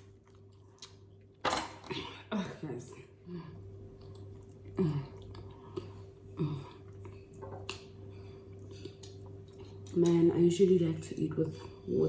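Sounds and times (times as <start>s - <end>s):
person chewing food: 0.0s - 1.4s, 3.9s - 10.2s.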